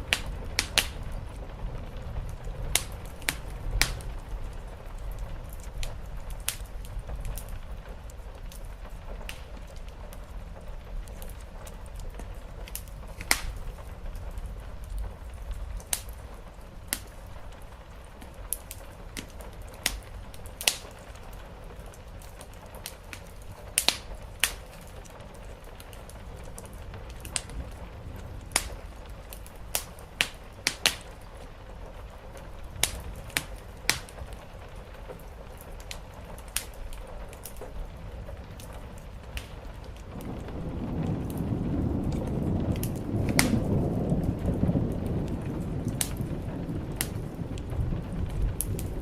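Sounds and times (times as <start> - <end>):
fire crackling and popping: 0.0 - 49.0
rain hissing: 0.0 - 49.0
low rumble: 37.7 - 49.0.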